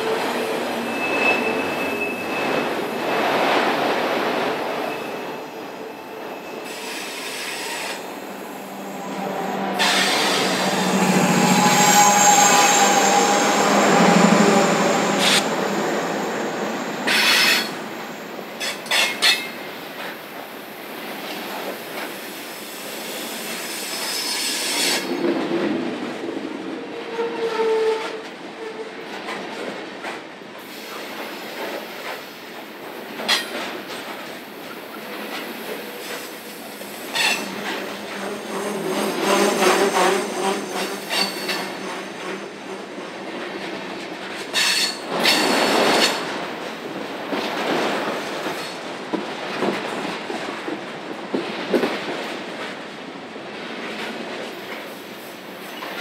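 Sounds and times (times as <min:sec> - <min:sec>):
freight train rumbling past: 0:00.0 - 0:56.0
wheel flanges squealing: 0:04.7 - 0:17.8.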